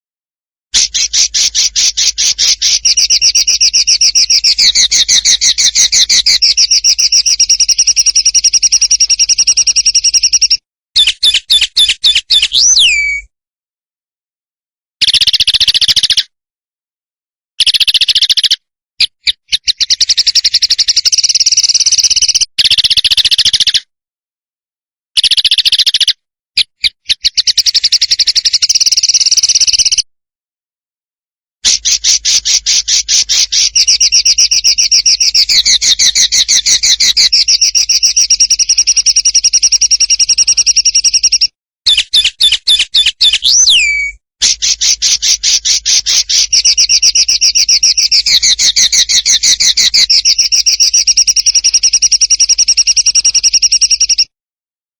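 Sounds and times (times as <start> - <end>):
songbird song: 0.8 - 13.3, 15.0 - 16.3, 17.6 - 23.8, 25.2 - 30.0, 31.7 - 54.3
falling whistle: 12.3 - 13.3, 42.4 - 44.2.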